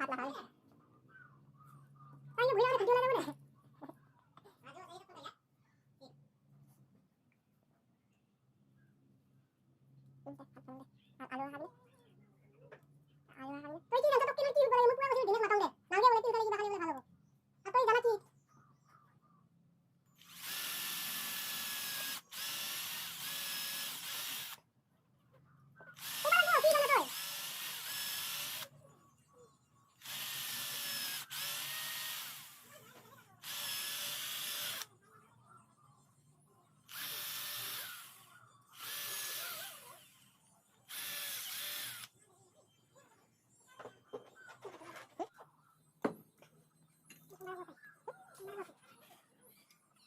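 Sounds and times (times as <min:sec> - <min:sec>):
power tool whining: 0:20.2 - 0:24.6, 0:26.0 - 0:28.7, 0:30.0 - 0:34.9, 0:36.9 - 0:42.1.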